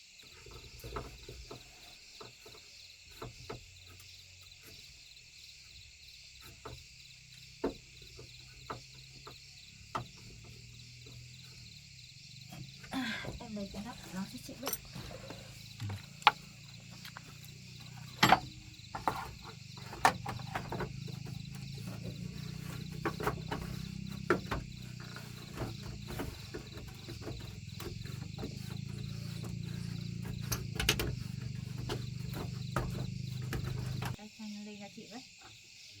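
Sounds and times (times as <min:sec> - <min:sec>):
crickets chirping: 0:00.0 - 0:36.0
metal hand tools clicking and knocking: 0:17.8 - 0:34.2.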